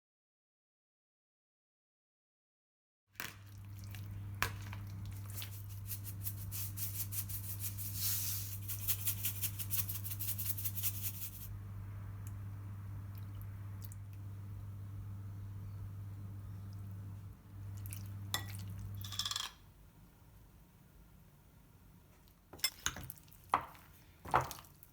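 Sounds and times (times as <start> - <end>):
steady low hum: 3.5 - 19.1.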